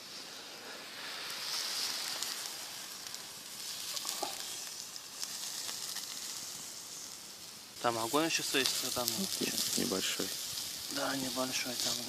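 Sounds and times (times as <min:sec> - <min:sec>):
fire crackling and popping: 0:00.0 - 0:12.0
sausages sizzling on grill: 0:00.0 - 0:12.0.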